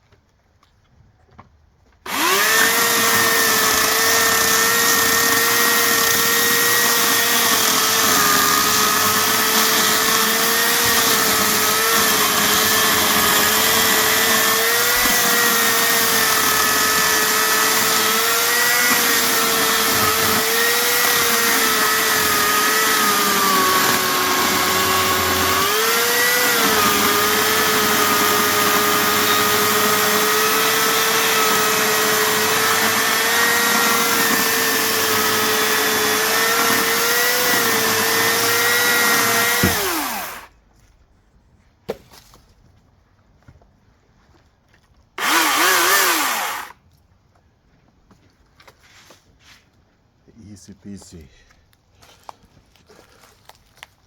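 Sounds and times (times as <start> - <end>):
electric chainsaw cutting wood: 2.0 - 40.5, 45.2 - 46.8.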